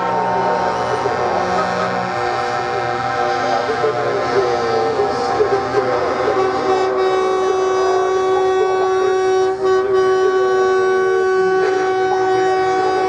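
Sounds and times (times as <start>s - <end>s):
truck air horn blast: 0.0s - 13.0s
wavering horn tones: 0.0s - 13.0s.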